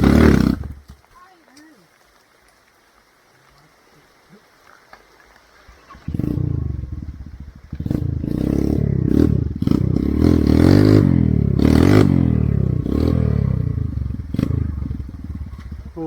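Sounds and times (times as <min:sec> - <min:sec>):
motorcycle engine revving: 0:00.0 - 0:00.8, 0:05.8 - 0:16.0.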